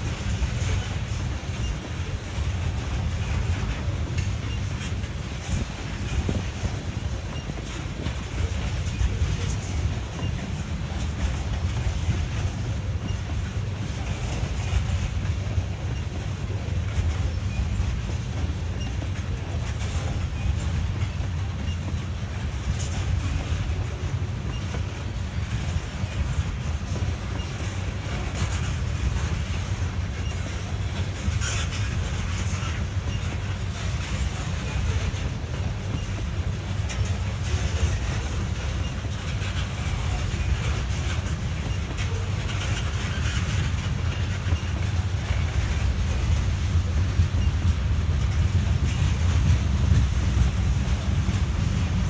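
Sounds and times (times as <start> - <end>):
tank cars clicking and clanking: 0.0 - 52.0
wheels rumbling on rails: 0.0 - 52.0.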